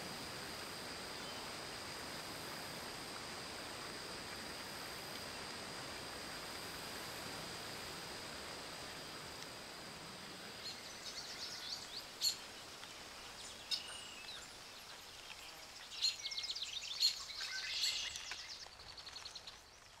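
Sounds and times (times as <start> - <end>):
faint hiss of ambience: 0.0 - 20.0
small birds chirping and trilling: 10.6 - 19.9.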